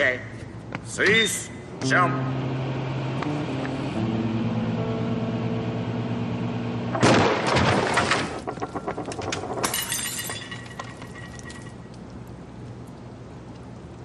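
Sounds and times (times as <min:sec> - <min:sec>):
microwave oven humming: 0:01.8 - 0:07.3
loud explosion bang: 0:07.0 - 0:07.9
glass breaking: 0:07.0 - 0:12.0
debris clattering: 0:07.0 - 0:12.1.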